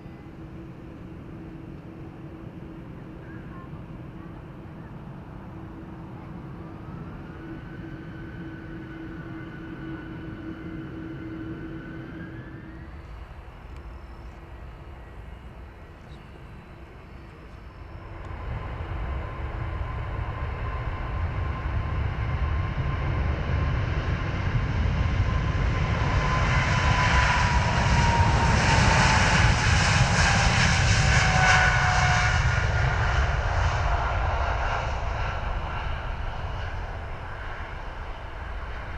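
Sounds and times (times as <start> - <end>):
engine whine: 0.0 - 38.9
jet engines at takeoff: 0.0 - 38.9.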